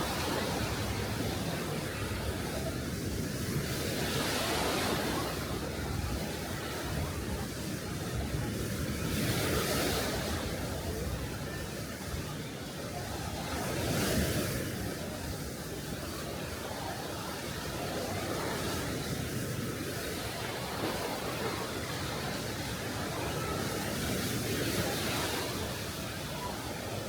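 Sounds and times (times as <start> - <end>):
sea waves breaking: 13.0 - 27.0.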